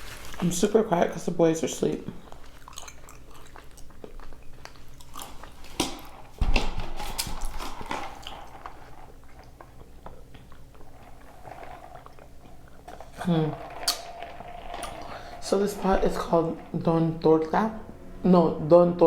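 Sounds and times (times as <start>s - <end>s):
person biting and chewing: 2.2s - 6.4s.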